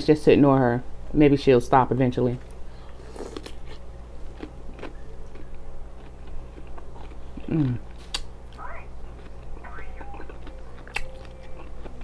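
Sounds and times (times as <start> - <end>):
steady low hum: 0.0 - 12.0
crunching cucumber: 3.1 - 8.3, 9.0 - 12.0.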